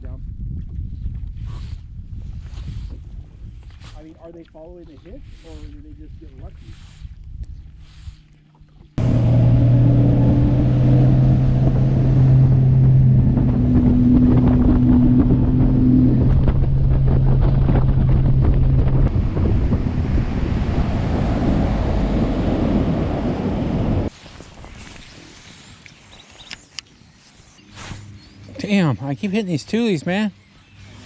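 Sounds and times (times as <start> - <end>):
wind noise on microphone: 0.0 - 26.7
outboard motor humming: 7.6 - 24.1
rushing water: 9.0 - 26.1.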